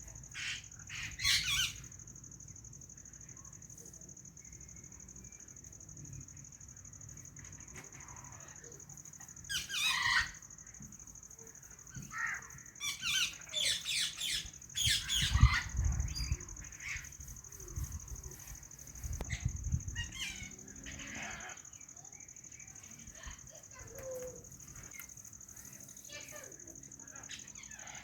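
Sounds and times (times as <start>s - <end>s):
parrot squawking and chirping: 0.4s - 1.8s.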